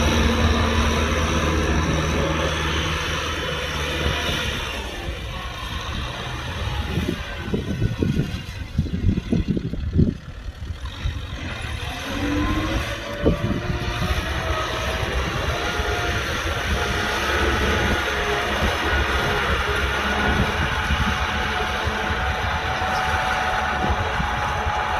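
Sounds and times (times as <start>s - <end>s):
tractor diesel engine running: 0.0s - 24.9s.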